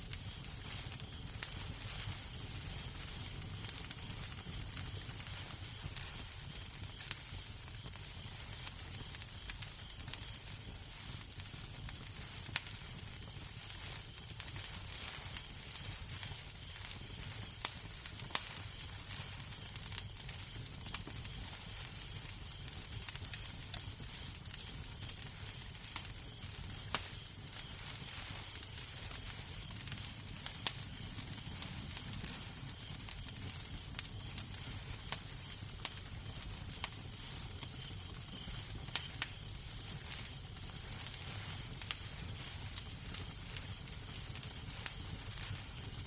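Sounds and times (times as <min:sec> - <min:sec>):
fireplace fire crackling: 0:00.0 - 0:46.0.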